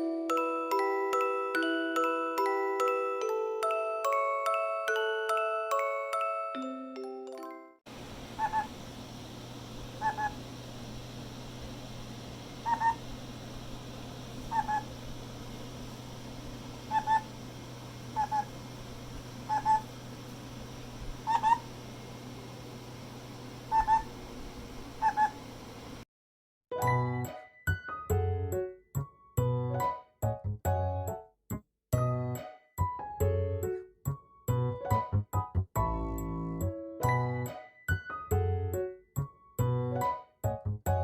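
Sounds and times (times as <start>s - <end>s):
low hum: 7.9s - 26.0s.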